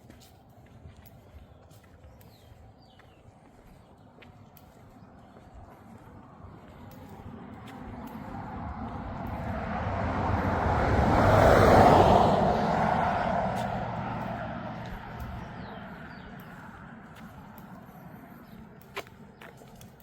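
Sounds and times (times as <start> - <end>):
vehicle passing by: 5.7 - 19.9.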